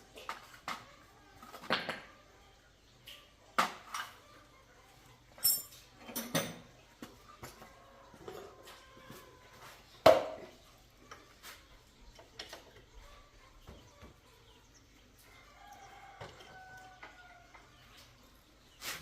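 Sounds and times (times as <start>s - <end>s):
metal tools clinking: 5.4s - 6.6s.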